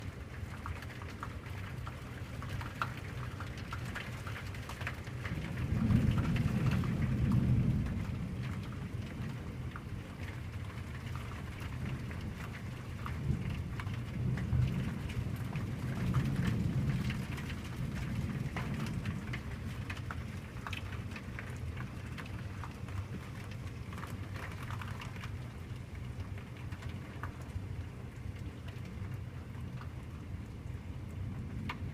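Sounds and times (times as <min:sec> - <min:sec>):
heavy rain pattering: 0:00.0 - 0:31.9
rolling thunder: 0:05.3 - 0:09.4, 0:13.2 - 0:20.8.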